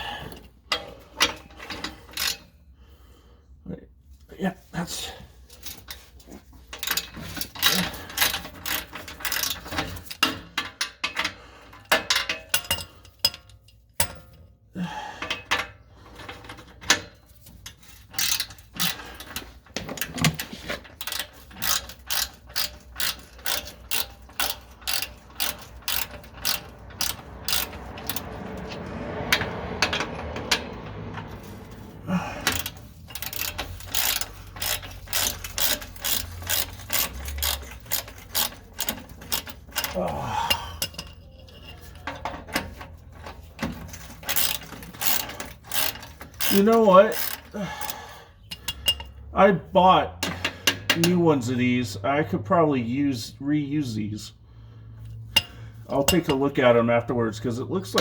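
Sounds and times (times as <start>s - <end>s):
socket ratchet clicking: 21.0s - 31.0s, 32.4s - 41.0s, 44.2s - 49.2s.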